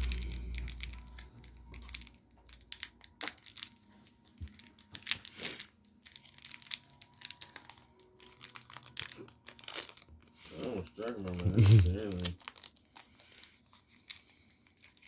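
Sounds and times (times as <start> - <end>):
foil wrapper crinkling and tearing: 0.0 - 15.0.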